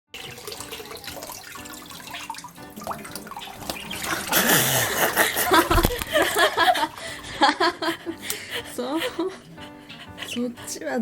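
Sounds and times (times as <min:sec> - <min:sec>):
water splashing in a sink: 0:00.1 - 0:07.2.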